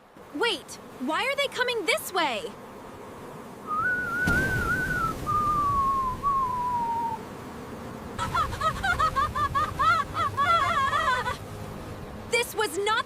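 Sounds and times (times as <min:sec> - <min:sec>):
low rush of wind: 0:02.9 - 0:07.3
whistle sliding down in pitch: 0:03.7 - 0:07.2.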